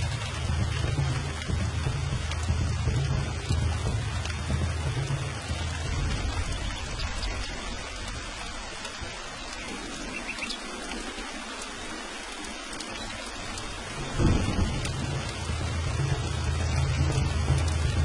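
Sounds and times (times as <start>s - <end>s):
low rumble of thunder: 0.0s - 18.0s
steady rain falling: 0.0s - 18.0s.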